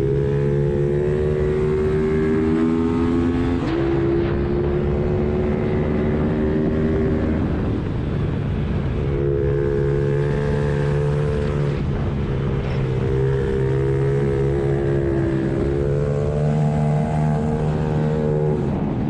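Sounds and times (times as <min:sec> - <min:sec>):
motorcycle engine running hard: 0:00.0 - 0:19.0.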